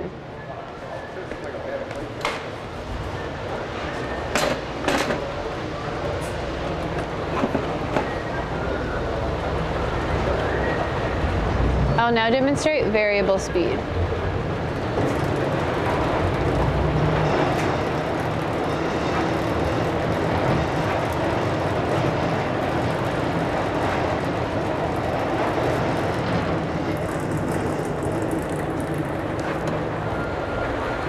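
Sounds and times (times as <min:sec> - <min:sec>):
thin steady whine: 0:00.0 - 0:31.0
mixer motor droning: 0:13.4 - 0:31.0.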